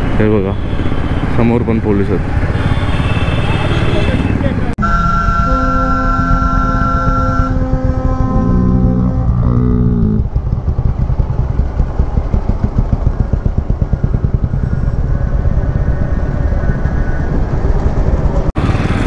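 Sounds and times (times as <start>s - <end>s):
motorcycle engine throbbing: 0.6s - 19.0s
droning tone stepping down: 4.8s - 18.5s.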